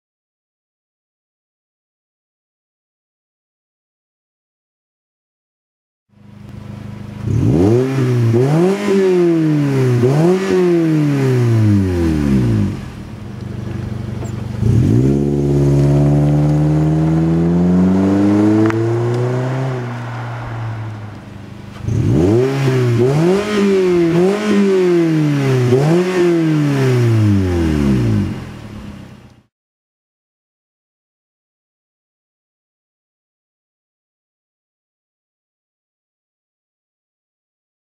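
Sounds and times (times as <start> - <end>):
car engine revving: 6.2 - 29.5.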